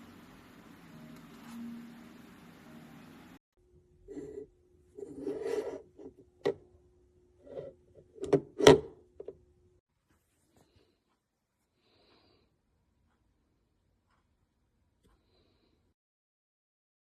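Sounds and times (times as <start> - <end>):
faint steady hum: 0.0 - 15.9
plastic device rubbing and scraping: 5.0 - 6.2.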